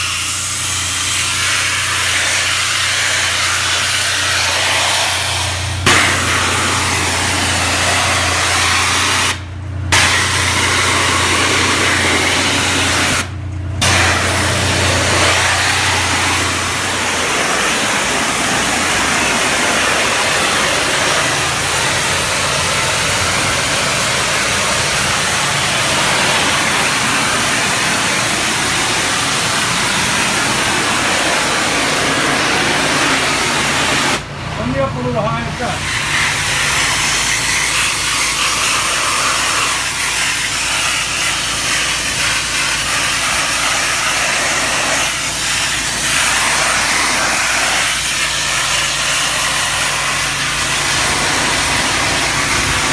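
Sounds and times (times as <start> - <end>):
engine humming: 0.0 - 52.9
pressure washer spray hissing: 0.0 - 52.9.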